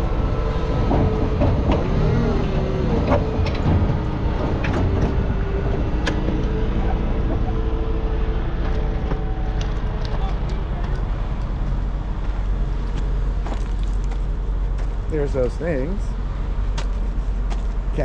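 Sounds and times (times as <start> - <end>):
engine rumbling: 0.0 - 18.0
sharp clicks and knocks: 0.9 - 5.2.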